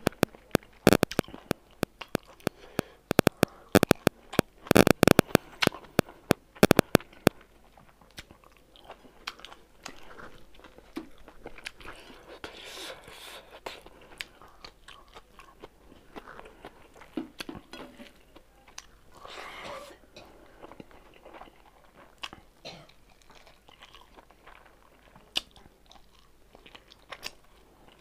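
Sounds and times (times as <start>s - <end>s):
wet mouth clicks and smacks: 0.0s - 7.4s
person chewing food: 0.0s - 28.0s.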